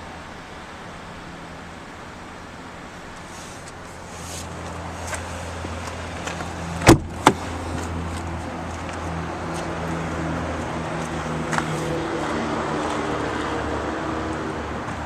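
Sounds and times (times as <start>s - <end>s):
pickup engine idling: 0.0s - 9.6s.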